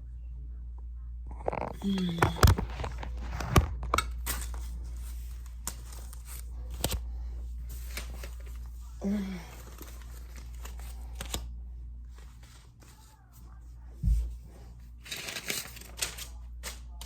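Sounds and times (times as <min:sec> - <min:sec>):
banknotes crinkling and rustling: 0:01.5 - 0:17.0
bills flicking: 0:14.2 - 0:17.0.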